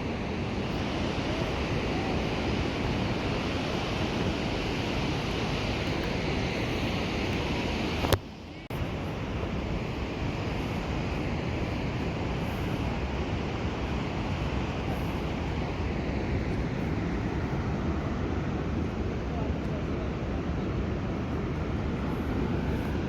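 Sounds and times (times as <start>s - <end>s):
mountain river rushing: 0.0s - 23.0s.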